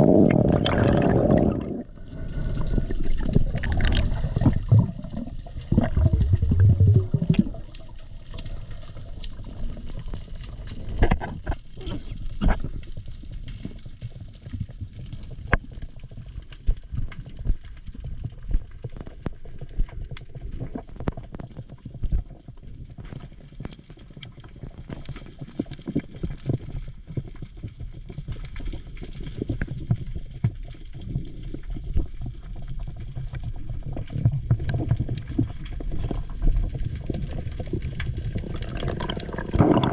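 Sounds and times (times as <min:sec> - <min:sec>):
water bubbling: 0:00.0 - 0:12.8, 0:32.2 - 0:39.9.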